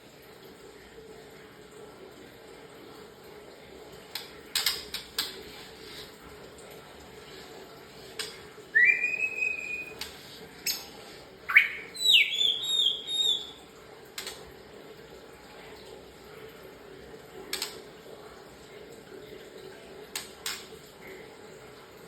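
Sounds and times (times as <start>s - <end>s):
songbird whistling: 8.7s - 10.0s, 11.5s - 13.6s.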